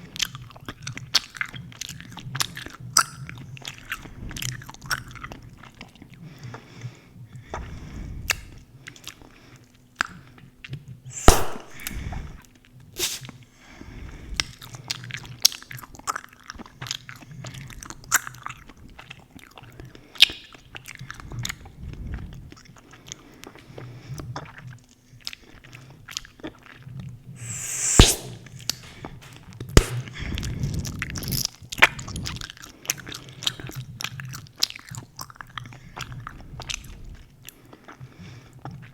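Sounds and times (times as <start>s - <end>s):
bubble-gum bubbles popping: 11.2s - 11.9s, 27.4s - 28.4s, 29.8s - 30.0s.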